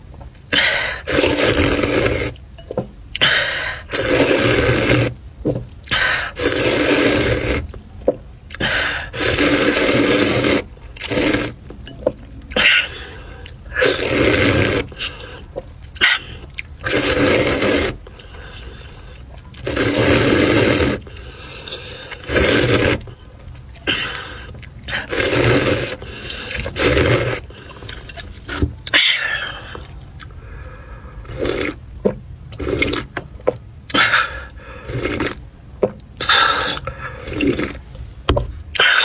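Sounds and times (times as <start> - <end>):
wet chewing: 0.4 - 39.0
loud eating bursts: 0.5 - 2.4, 3.1 - 5.2, 5.8 - 7.8, 8.5 - 31.9, 32.5 - 33.2, 33.9 - 35.5, 36.2 - 38.0.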